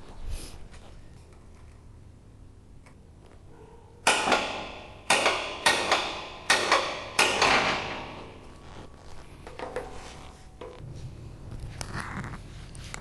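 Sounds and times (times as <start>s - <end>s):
metal clangs on steel: 4.0s - 8.4s.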